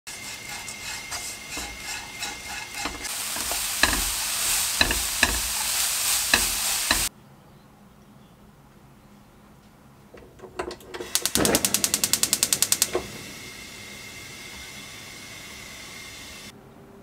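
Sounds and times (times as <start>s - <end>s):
fish sizzling in a wok: 0.1s - 7.1s, 11.1s - 16.5s
spatula scraping and knocking pan: 0.1s - 7.1s.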